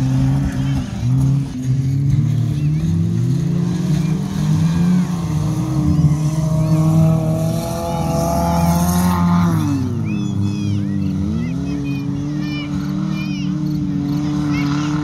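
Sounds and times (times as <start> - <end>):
engine revving: 0.0 - 15.0
race car engines running: 0.0 - 15.0.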